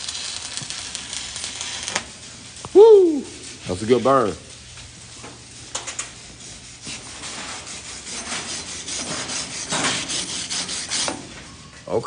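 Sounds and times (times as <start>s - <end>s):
welding arc crackling: 0.0s - 11.0s.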